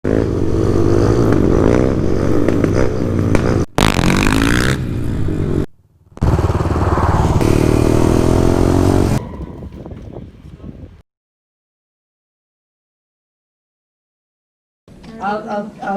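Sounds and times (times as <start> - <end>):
motorcycle and quad engines revving: 0.0 - 10.2.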